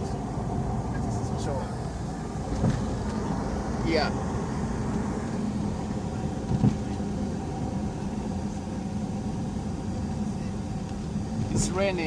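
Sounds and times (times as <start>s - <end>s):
vehicle engine and road noise: 0.0s - 12.0s
vehicle bump: 2.4s - 3.4s, 6.1s - 7.2s, 10.8s - 11.9s.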